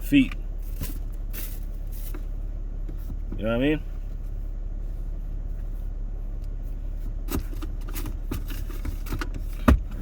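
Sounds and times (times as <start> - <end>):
vehicle interior hum: 0.0 - 10.0.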